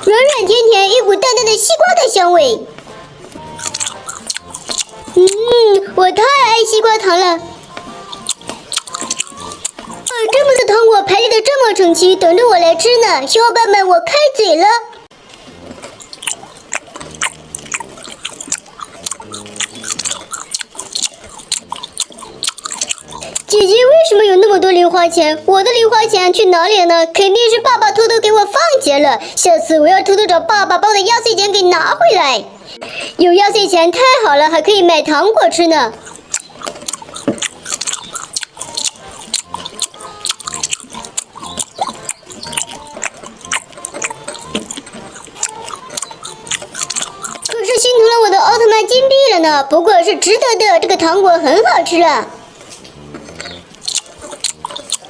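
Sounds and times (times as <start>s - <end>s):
faint background music: 0.0s - 55.0s
chewing with wet mouth clicks: 3.3s - 5.5s, 7.6s - 10.8s, 15.3s - 23.8s, 35.9s - 47.8s, 52.6s - 55.0s.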